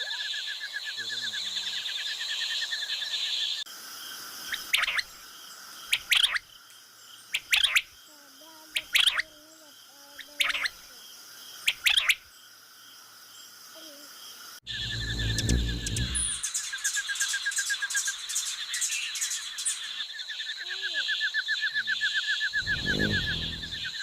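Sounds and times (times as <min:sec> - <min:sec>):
insect chorus: 0:00.0 - 0:24.0
low rumble: 0:14.7 - 0:16.4, 0:22.6 - 0:24.0
faint low wavering tones: 0:22.6 - 0:24.0.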